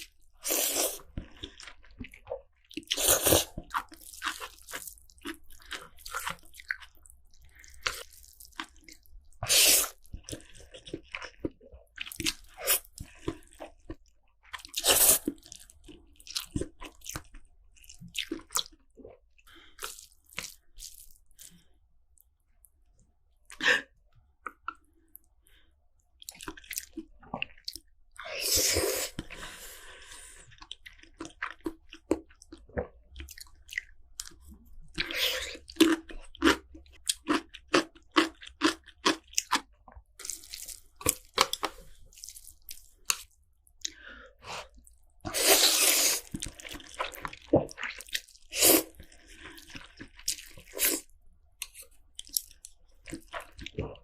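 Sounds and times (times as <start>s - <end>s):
noodle slurping: 45.3s - 46.6s.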